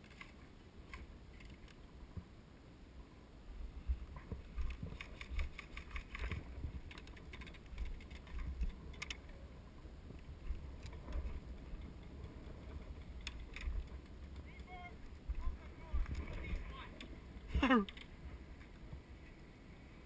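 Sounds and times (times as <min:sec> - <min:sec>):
low rumble of wind on microphone: 0:00.0 - 0:20.0
sharp clicks: 0:04.6 - 0:09.3.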